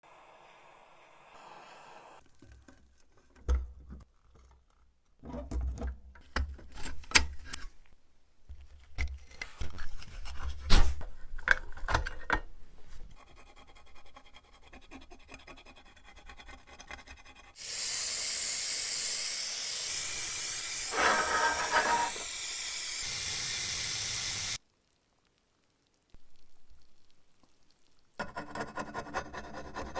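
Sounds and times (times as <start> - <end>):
steady hiss: 0.0 - 2.2, 17.7 - 27.9.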